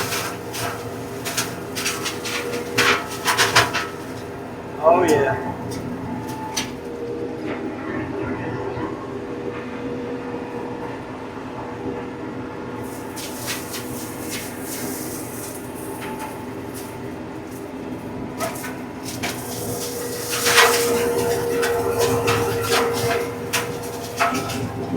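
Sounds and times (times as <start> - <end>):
flail mower shredding brush: 0.0 - 7.0, 12.8 - 24.9
tractor diesel engine: 0.0 - 7.7, 12.7 - 24.9.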